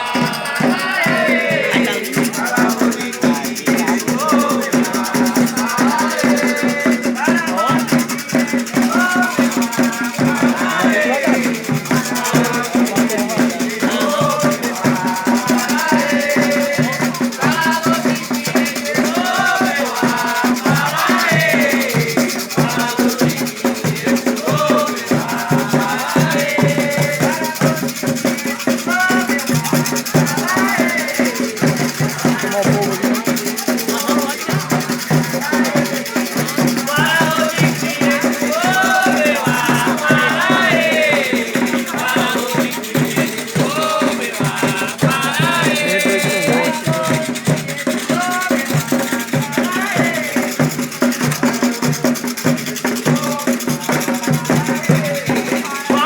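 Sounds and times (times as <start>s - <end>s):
percussion beat: 0.0s - 56.0s
shaken rattle: 0.0s - 56.0s
voices singing a chant: 0.0s - 56.0s.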